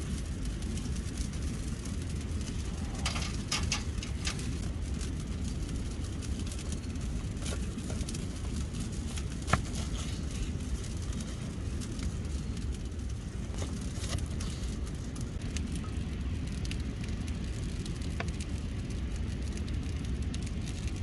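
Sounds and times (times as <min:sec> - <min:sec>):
campfire crackling: 0:00.0 - 0:21.0
fire pops: 0:00.0 - 0:21.0
low steady rumble: 0:00.0 - 0:21.0.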